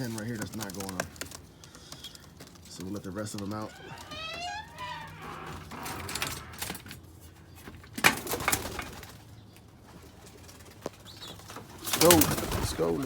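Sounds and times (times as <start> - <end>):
knocks and rattles: 3.3 - 6.9.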